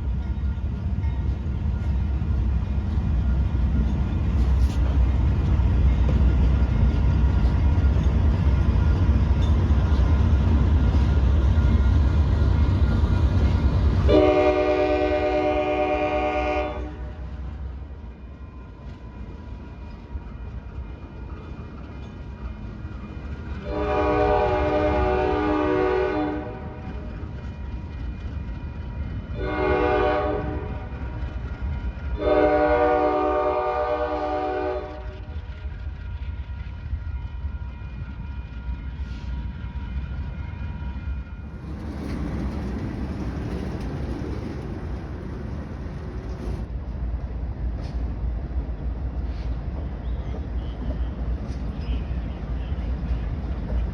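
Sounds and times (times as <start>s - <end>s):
locomotive horn blasts: 14.1s - 17.2s, 23.6s - 27.0s, 29.3s - 31.0s, 32.2s - 35.1s
rushing rumble: 41.4s - 49.8s.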